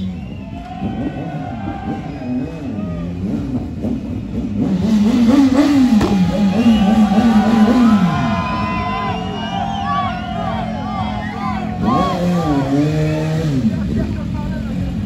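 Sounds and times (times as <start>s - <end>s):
motorcycle engine revving: 0.8s - 9.2s, 11.6s - 15.0s.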